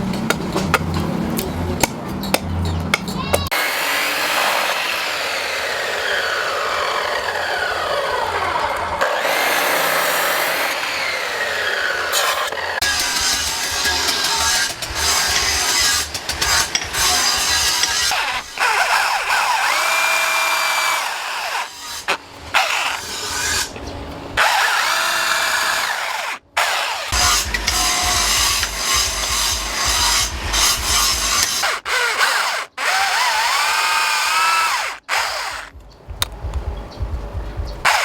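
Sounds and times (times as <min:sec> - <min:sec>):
power tool whining against metal: 0:03.4 - 0:23.8, 0:24.4 - 0:35.8.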